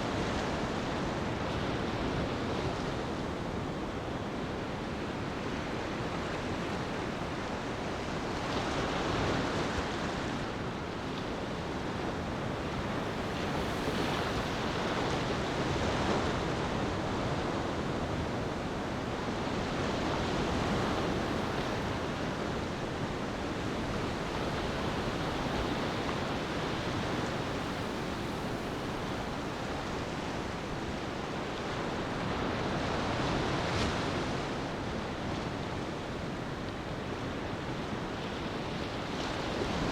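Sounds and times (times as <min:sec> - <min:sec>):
ocean waves washing onto beach: 0:00.0 - 0:39.9.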